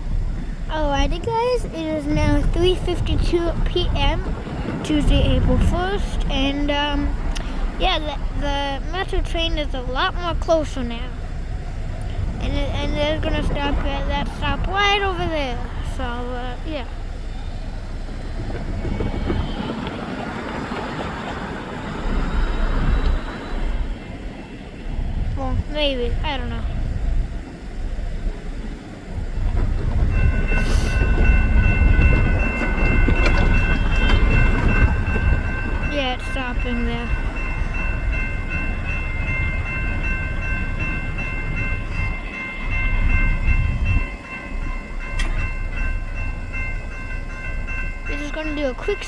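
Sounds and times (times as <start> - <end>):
diesel train rumble: 0.0 - 49.0
railroad crossing bell ringing: 0.0 - 49.0
wind buffeting microphone: 0.0 - 49.0.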